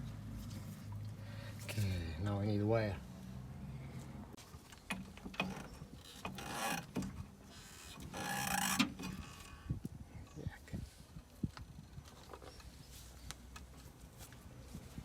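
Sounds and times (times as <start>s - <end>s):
ratchet-like rasping: 5.4s - 9.5s.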